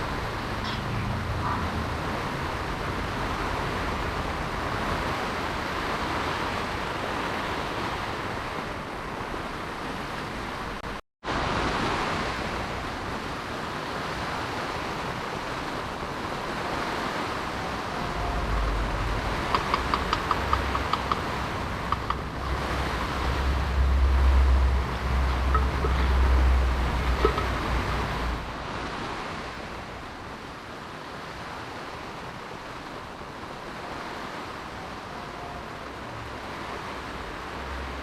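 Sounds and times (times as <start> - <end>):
heavy rain hiss: 11.3 - 29.9
sharp ticks: 19.4 - 23.3.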